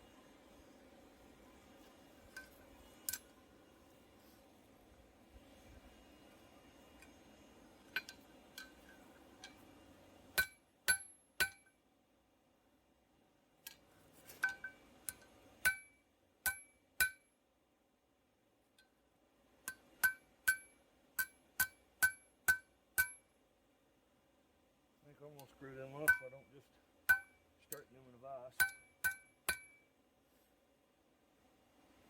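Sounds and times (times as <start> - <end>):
hammer ringing on steel: 26.0 - 26.5, 27.1 - 27.4, 28.6 - 29.8.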